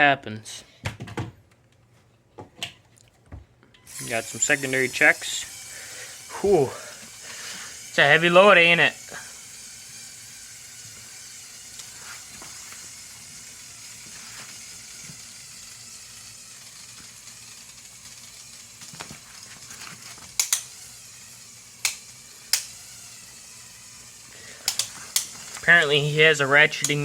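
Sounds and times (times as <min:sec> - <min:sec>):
toy motor and gears whirring: 0:03.8 - 0:27.0
plastic clicks: 0:24.6 - 0:25.6.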